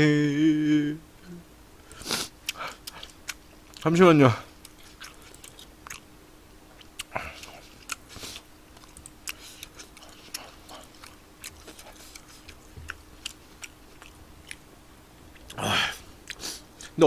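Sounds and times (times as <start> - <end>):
faint steady hum: 0.0 - 17.0
chewing mouth noises: 2.4 - 3.9, 4.5 - 6.1, 6.7 - 14.6.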